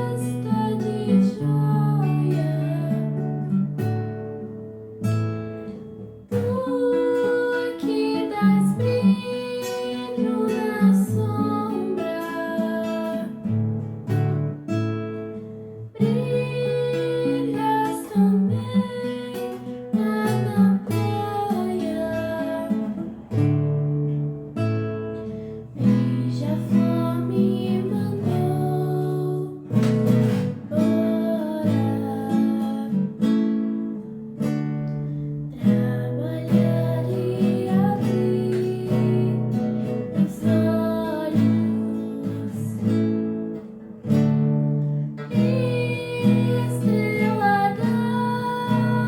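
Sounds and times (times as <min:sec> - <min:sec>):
woman singing: 0:00.0 - 0:04.0, 0:06.3 - 0:13.6, 0:15.9 - 0:23.4, 0:25.8 - 0:34.1, 0:35.5 - 0:43.7, 0:44.8 - 0:49.0
acoustic guitar strummed: 0:00.0 - 0:49.0.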